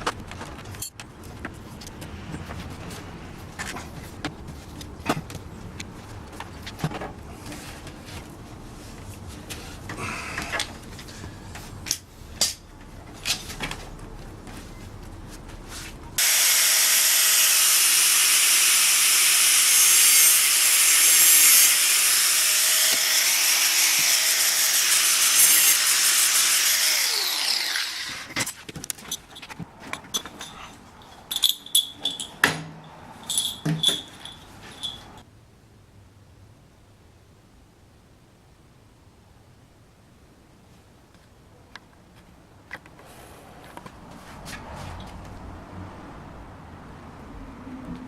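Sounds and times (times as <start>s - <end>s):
power tool running: 16.2s - 28.4s
light taps and ringing clinks: 29.1s - 35.2s.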